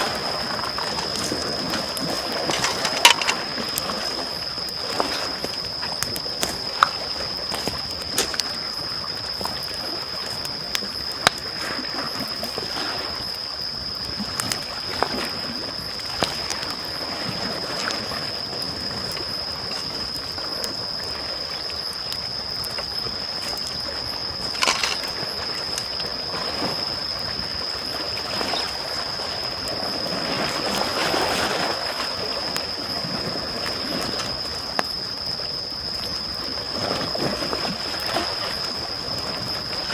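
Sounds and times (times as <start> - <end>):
campfire wood crackling: 0.0 - 11.6, 13.8 - 17.0, 17.8 - 26.2
small waves lapping at shore: 0.0 - 39.9.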